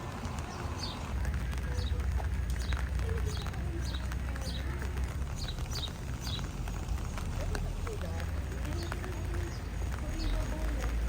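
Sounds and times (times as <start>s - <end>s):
bird chirping: 0.4s - 6.6s.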